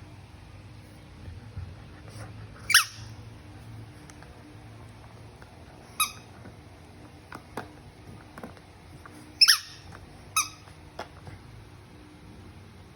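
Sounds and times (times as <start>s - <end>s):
squeaky chew toy: 2.6s - 3.2s, 5.9s - 6.3s, 9.4s - 10.8s.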